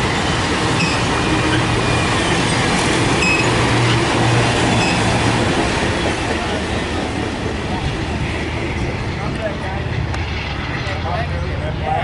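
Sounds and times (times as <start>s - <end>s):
train wheels rumbling on track: 0.0s - 12.0s
high wheel squeals: 0.7s - 4.0s, 4.7s - 5.2s.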